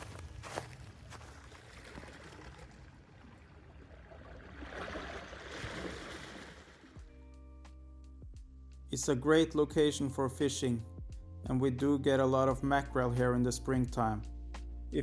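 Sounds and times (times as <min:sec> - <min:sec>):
footsteps crunching: 0:00.0 - 0:02.4.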